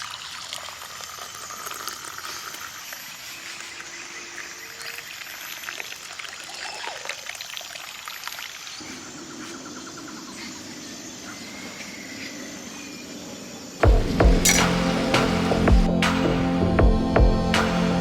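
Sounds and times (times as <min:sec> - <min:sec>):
water trickling and pouring: 0:00.0 - 0:09.2.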